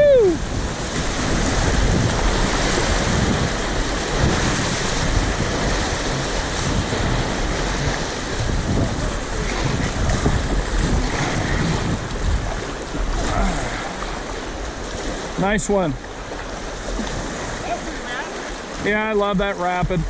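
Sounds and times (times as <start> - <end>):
wind on microphone: 0.0 - 19.0
river rapid rushing: 0.0 - 20.0.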